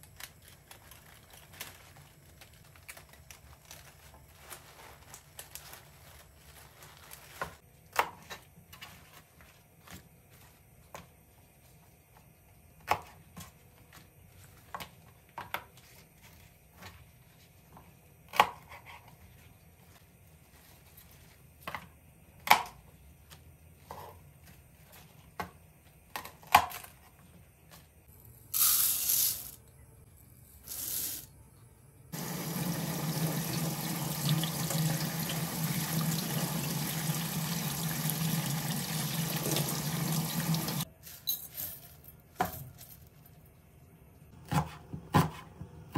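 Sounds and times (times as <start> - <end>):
tap water running into sink: 32.2 - 40.8.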